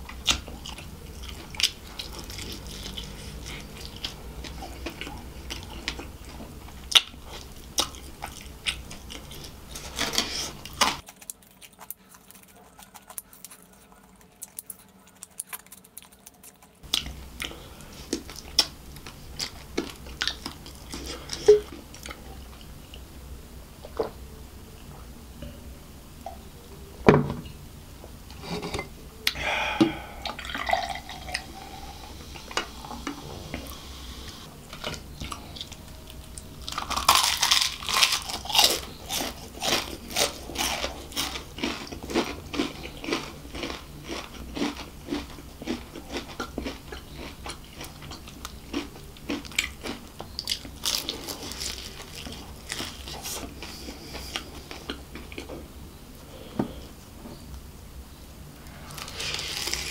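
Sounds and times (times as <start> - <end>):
mouth chewing sounds: 0.1 - 23.0, 29.2 - 55.6
crisp crunches of fried food: 8.8 - 17.2, 36.6 - 55.5, 58.8 - 59.9.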